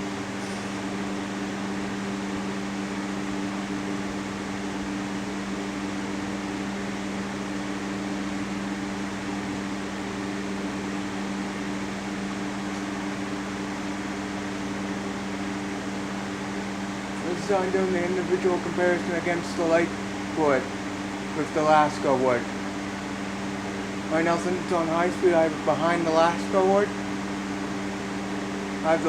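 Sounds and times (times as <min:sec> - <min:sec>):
electric fan rushing air: 0:00.0 - 0:29.0.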